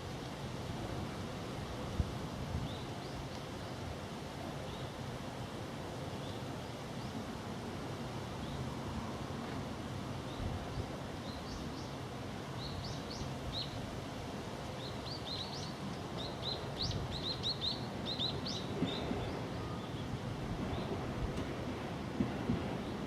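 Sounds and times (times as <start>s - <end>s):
outdoor background hiss and rumble: 0.0s - 23.0s
small birds chirping: 14.7s - 20.1s.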